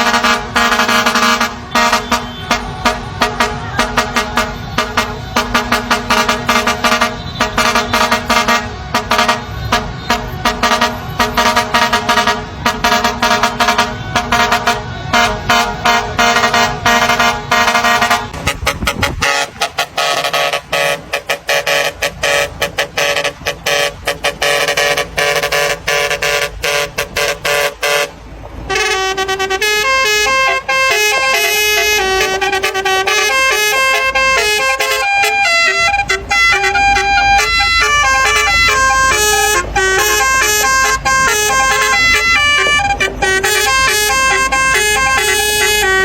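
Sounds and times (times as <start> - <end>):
musical truck horn: 0.0 - 46.0.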